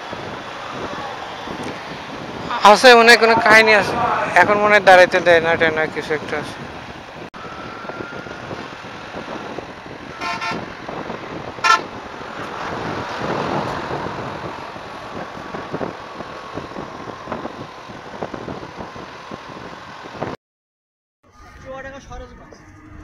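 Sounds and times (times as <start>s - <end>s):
road traffic: 0.0s - 20.4s
wind noise: 0.0s - 20.4s
vehicle horn toots: 10.1s - 10.7s, 11.6s - 12.0s.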